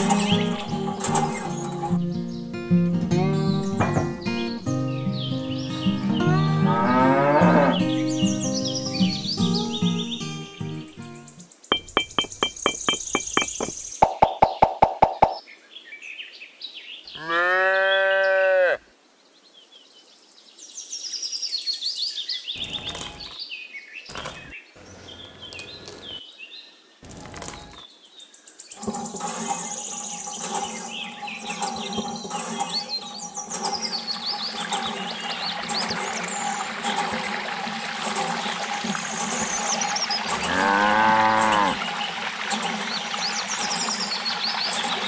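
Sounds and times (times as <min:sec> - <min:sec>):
birds chirping: 0:00.0 - 0:16.0, 0:22.3 - 0:26.3, 0:27.0 - 0:45.0
cow mooing: 0:06.3 - 0:07.9, 0:17.2 - 0:18.8, 0:40.3 - 0:41.9.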